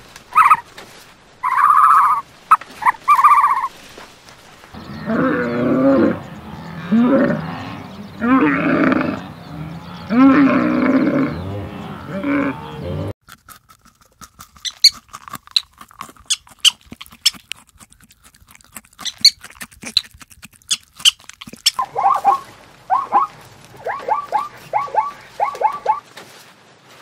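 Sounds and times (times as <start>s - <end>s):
animal call with wavering pitch: 4.8s - 13.1s, 21.8s - 26.0s
quick chirps: 14.6s - 17.4s, 19.0s - 26.0s.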